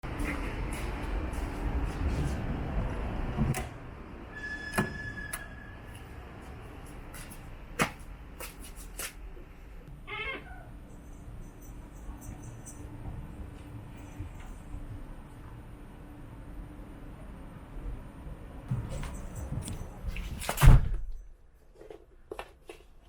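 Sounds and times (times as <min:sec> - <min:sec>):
cat meowing: 0:10.1 - 0:10.7.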